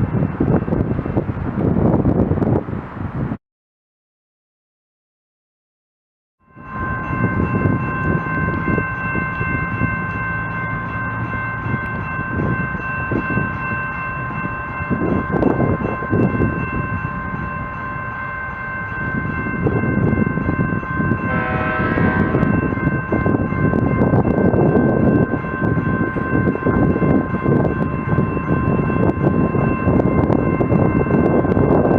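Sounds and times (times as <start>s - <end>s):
train rumbling: 0.0s - 3.4s, 6.6s - 31.9s
short tone: 21.2s - 23.0s
train horn chord: 21.2s - 23.4s.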